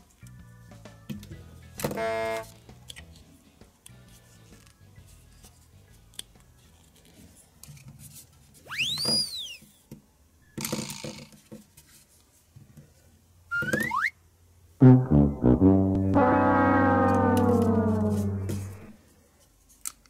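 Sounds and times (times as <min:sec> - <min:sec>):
quiet background music: 0:00.0 - 0:08.6
rising and falling whistle: 0:08.7 - 0:09.6, 0:13.5 - 0:14.1, 0:15.4 - 0:18.9
rising whistle: 0:13.5 - 0:14.1, 0:15.4 - 0:19.0.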